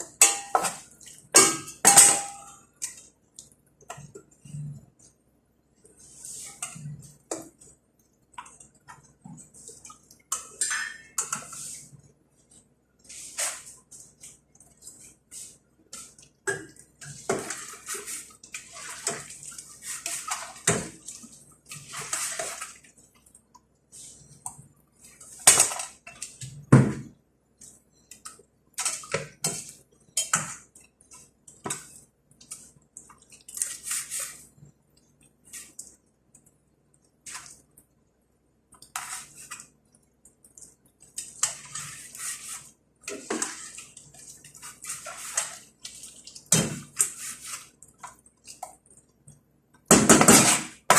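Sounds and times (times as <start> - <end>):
pots and utensils clattering: 0.0 - 3.0, 10.3 - 11.6, 49.9 - 50.9
water splashing: 16.0 - 23.2.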